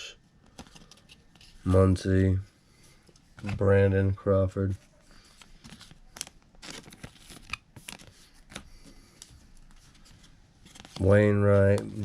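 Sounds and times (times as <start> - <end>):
foil wrappers crinkling: 5.6 - 8.6.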